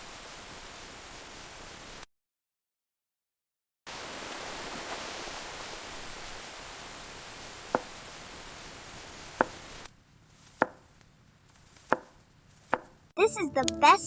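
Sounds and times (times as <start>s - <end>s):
heavy rain hissing: 0.0s - 2.1s, 3.9s - 9.9s
sharp knocks: 10.6s - 10.8s.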